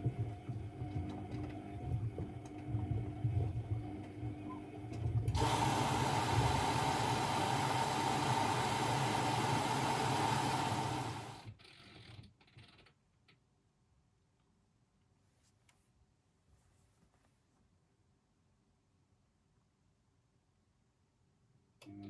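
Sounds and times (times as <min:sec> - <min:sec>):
washing machine rumbling: 0:00.0 - 0:11.4.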